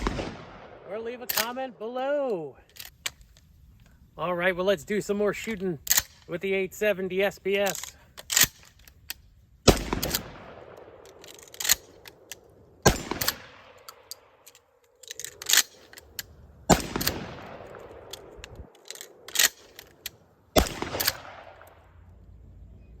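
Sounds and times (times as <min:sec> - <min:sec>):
shotgun booms with echo: 0:00.0 - 0:00.9, 0:09.7 - 0:11.0, 0:12.8 - 0:13.8, 0:16.7 - 0:18.1, 0:20.6 - 0:21.6
shotgun pump clack: 0:01.2 - 0:01.6, 0:07.7 - 0:21.8.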